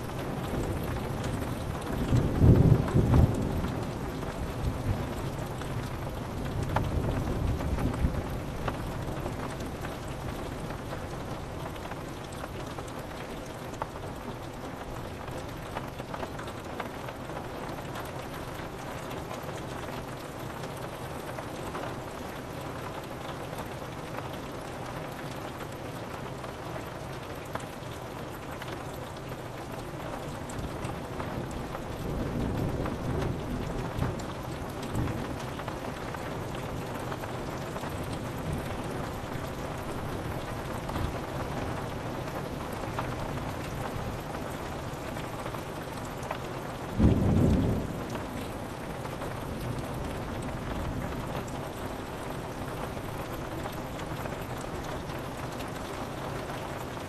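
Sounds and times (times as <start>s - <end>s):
low rumble of thunder: 0.0s - 12.4s, 29.8s - 56.2s
rain on a window pane: 0.0s - 57.0s
crack of thunder: 47.0s - 48.5s.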